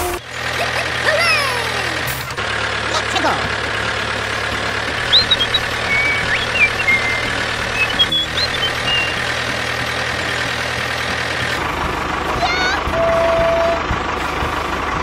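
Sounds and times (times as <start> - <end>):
tractor engine running: 0.0 - 15.0
short high chirps: 5.1 - 9.2.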